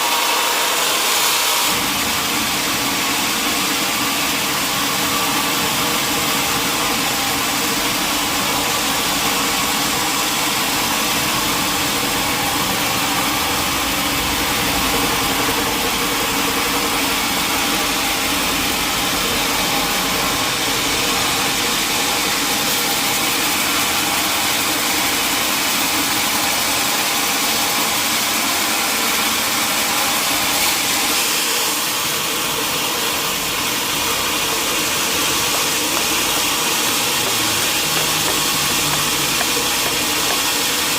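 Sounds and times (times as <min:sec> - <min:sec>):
motor humming: 0:34.0 - 0:40.9.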